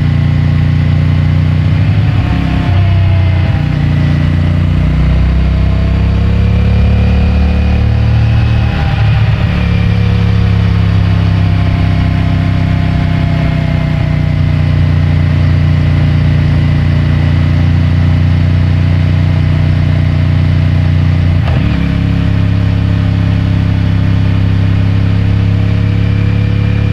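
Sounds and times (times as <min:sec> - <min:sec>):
motorcycle engine riding: 0:00.0 - 0:26.9.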